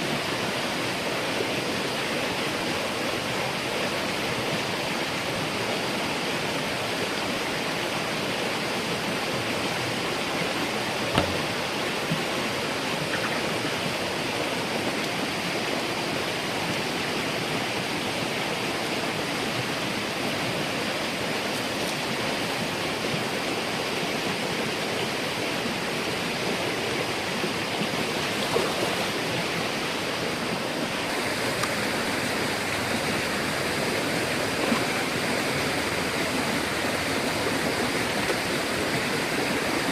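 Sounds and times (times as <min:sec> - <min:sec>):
running water rushing: 0:00.0 - 0:39.9
faint knocks: 0:11.1 - 0:11.6.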